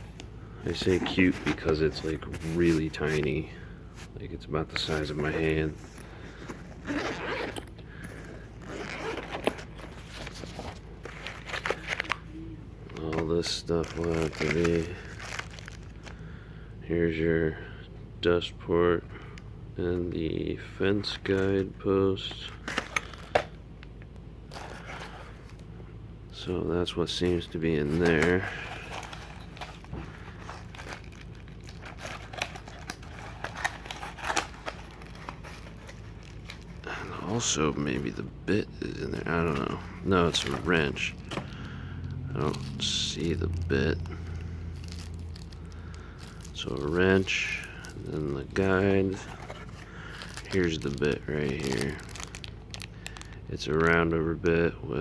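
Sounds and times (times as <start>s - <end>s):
packaging crinkling and rustling: 0.0s - 16.3s, 20.9s - 23.9s, 24.5s - 25.7s, 26.9s - 54.2s
zipper rasping open: 6.5s - 10.1s.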